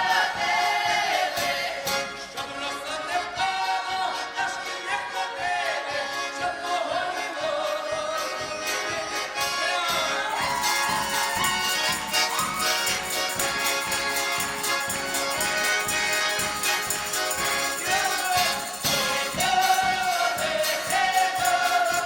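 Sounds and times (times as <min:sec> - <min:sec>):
folk ensemble music: 0:00.0 - 0:22.0
steady percussive beat: 0:10.3 - 0:22.0.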